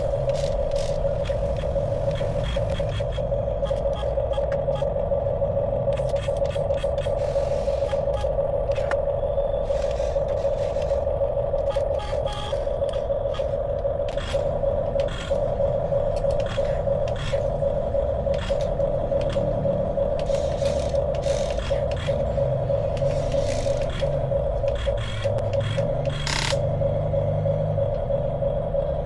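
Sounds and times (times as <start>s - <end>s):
low rumble: 0.0s - 29.0s
electric motor whining: 9.6s - 15.4s, 20.2s - 27.8s.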